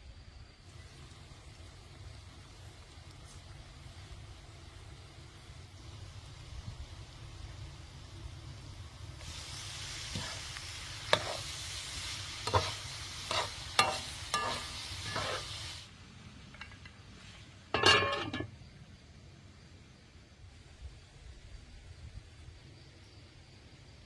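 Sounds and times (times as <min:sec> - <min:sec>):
food sizzling in a pan: 0:00.6 - 0:15.9
utensil scraping a pan: 0:10.1 - 0:10.5, 0:11.1 - 0:11.6, 0:12.3 - 0:15.7
metallic clatter with ring: 0:13.3 - 0:15.4, 0:16.5 - 0:17.0, 0:17.7 - 0:18.5.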